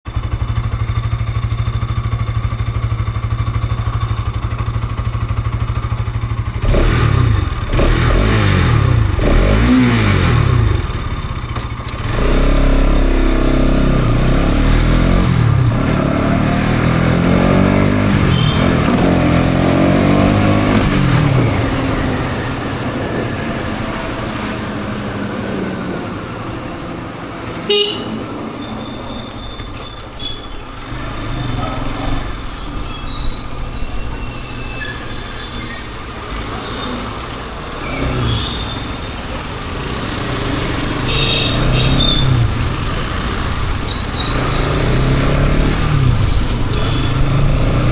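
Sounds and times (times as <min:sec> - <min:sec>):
motorcycle engine revving: 0:00.1 - 0:47.9
horn toot: 0:18.2 - 0:19.0, 0:27.7 - 0:30.7, 0:41.0 - 0:42.5, 0:46.7 - 0:47.5.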